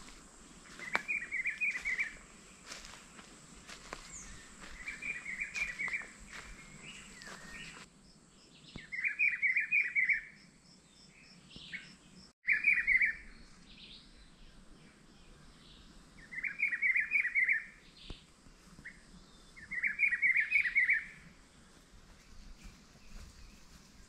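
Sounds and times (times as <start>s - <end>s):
songbird chattering: 3.8s - 7.8s.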